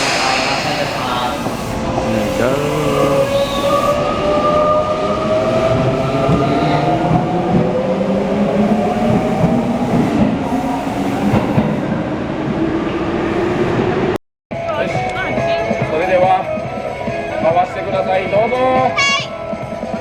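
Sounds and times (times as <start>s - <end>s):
electric train motor whine: 0.0s - 11.8s
train wheels rattling on rails: 0.0s - 14.1s.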